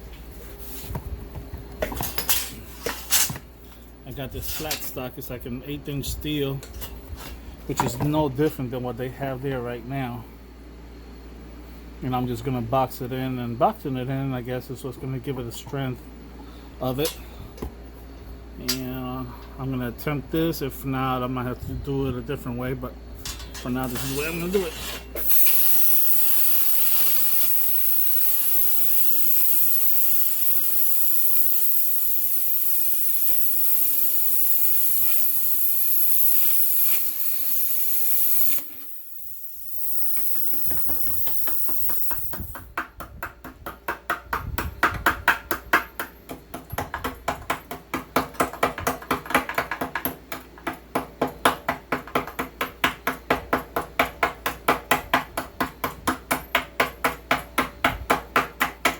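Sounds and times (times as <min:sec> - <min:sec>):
plasma cutter hissing: 0:23.8 - 0:42.5.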